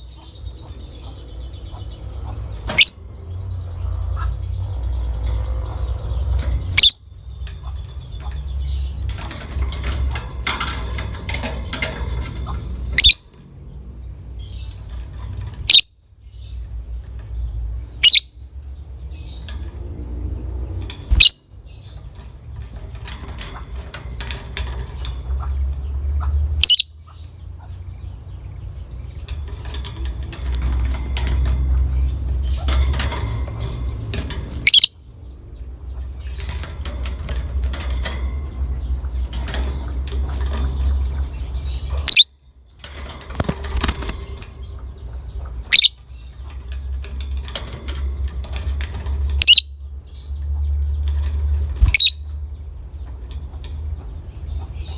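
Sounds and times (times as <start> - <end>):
lovebird chattering: 0.0 - 19.8, 20.9 - 52.3.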